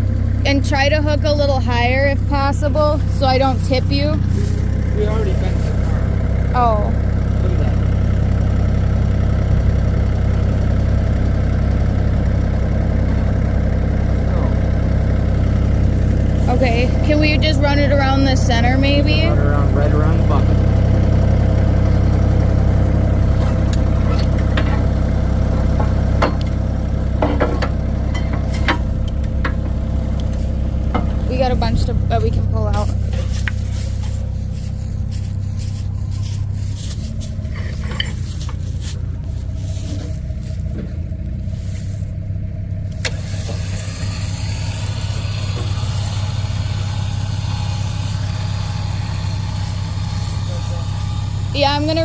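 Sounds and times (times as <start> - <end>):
engine idling: 0.0 - 52.0
sharp clicks and knocks: 25.7 - 26.6, 27.2 - 31.3.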